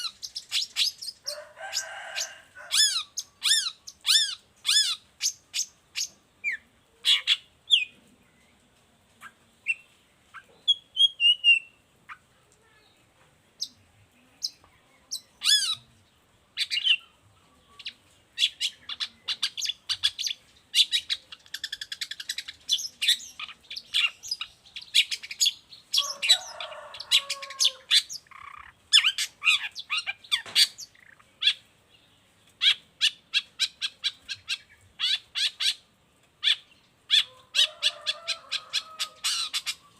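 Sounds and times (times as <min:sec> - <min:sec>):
harsh bird chattering: 0:02.7 - 0:07.9, 0:14.4 - 0:16.0, 0:17.8 - 0:31.7, 0:32.6 - 0:39.9.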